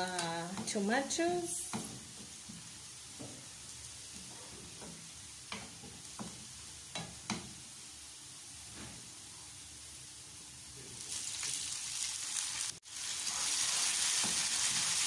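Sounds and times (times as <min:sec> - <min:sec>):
food sizzling in frying pan: 0:00.0 - 0:15.0.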